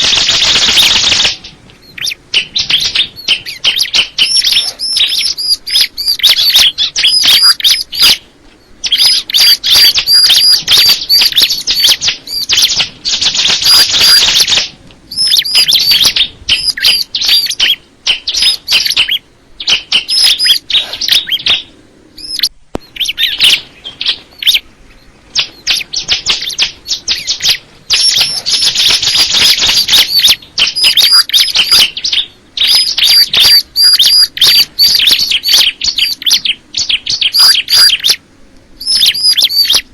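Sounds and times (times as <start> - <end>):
bird singing high sharp chirps: 0.0 - 24.7, 25.3 - 38.2, 38.8 - 39.9.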